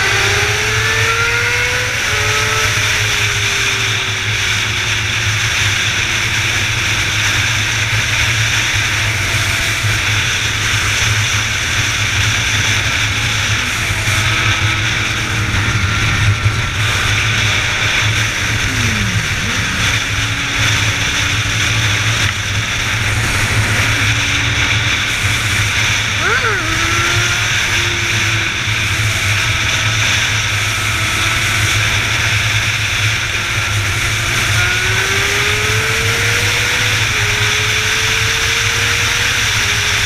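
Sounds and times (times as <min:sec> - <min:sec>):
motorcycle engine drone: 0:00.0 - 0:40.0
road noise: 0:00.0 - 0:40.0
wind noise: 0:03.2 - 0:38.0.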